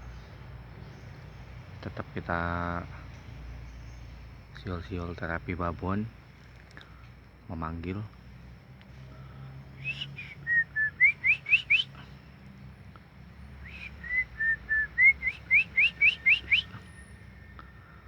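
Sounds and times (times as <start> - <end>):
person whistling: 9.8 - 11.9, 13.7 - 16.8.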